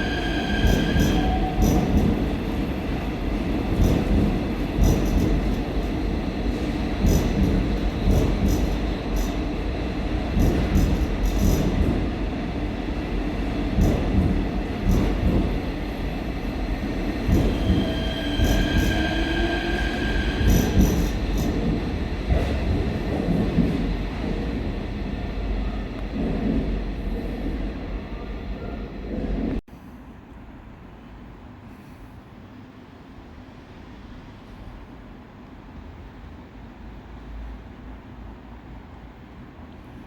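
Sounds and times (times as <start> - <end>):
wheels squealing on rail: 0.0 - 2.0, 17.3 - 21.2
electric train rumbling: 0.0 - 31.7.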